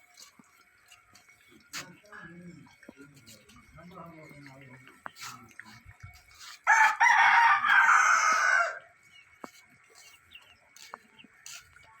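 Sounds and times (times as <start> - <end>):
rooster crowing: 6.7 - 8.9.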